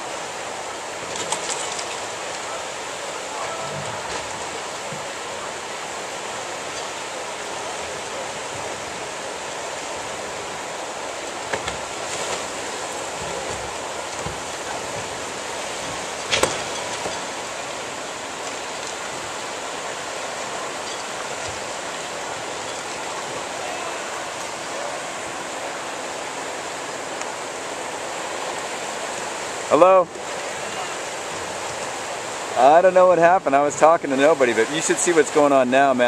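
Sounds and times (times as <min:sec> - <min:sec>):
surge water rushing: 0:00.0 - 0:36.0
knocks and sharp crack: 0:16.2 - 0:17.2.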